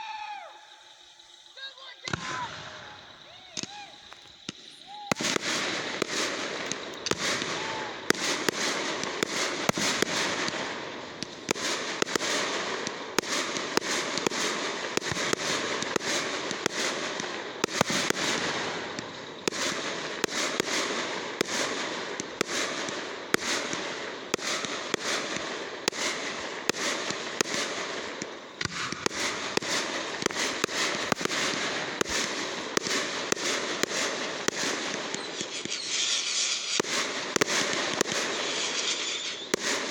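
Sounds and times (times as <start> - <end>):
fireworks crackling and popping: 0.0 - 39.9.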